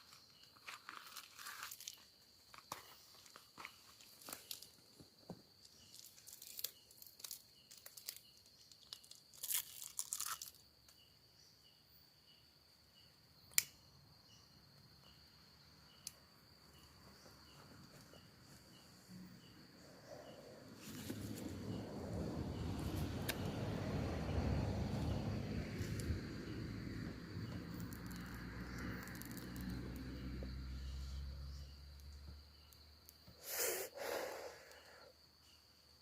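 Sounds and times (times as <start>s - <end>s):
insects chirping: 0.0s - 36.0s
cigarette pack crinkling: 5.9s - 10.6s
vehicle approaching: 20.1s - 32.5s.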